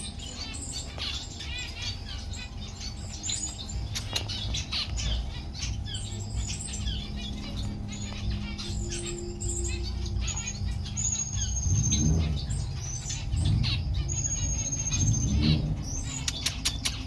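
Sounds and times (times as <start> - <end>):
bird singing high whistled notes: 0.0 - 17.0
low rumbles: 0.0 - 17.0
sharp clicks: 16.2 - 17.0.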